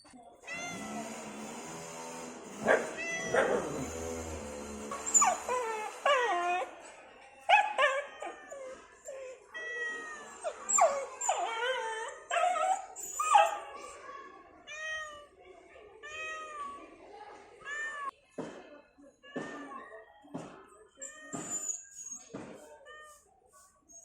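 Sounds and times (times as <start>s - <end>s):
dog whining and howling: 2.6s - 4.1s, 4.9s - 6.8s, 7.6s - 13.6s.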